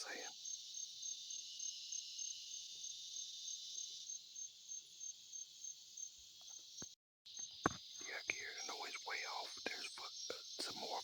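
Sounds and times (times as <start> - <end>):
insect chirping: 0.0 - 11.0
insect chorus buzzing: 0.0 - 11.0.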